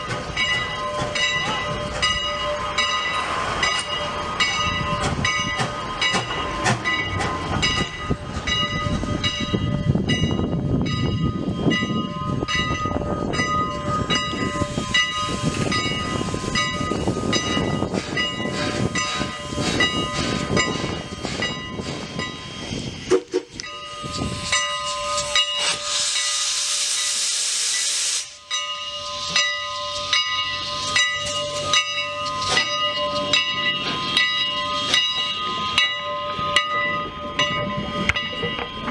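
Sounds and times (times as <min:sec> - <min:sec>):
steam locomotive running: 0:00.0 - 0:38.9
steam hissing burst: 0:24.2 - 0:28.4.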